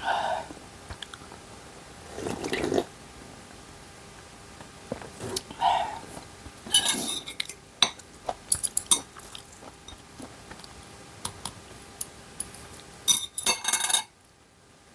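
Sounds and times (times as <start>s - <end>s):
utensils clinking against dishes: 6.7s - 10.0s, 13.1s - 14.1s.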